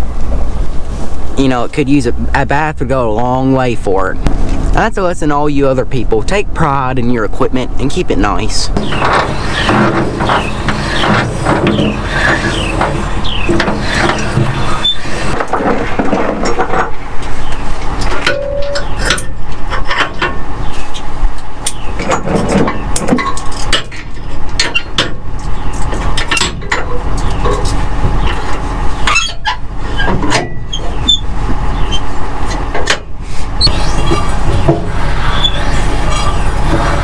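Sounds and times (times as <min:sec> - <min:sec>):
rattles and clanks: 0:08.6 - 0:37.0
vehicle engine running: 0:08.7 - 0:15.4, 0:30.8 - 0:37.0.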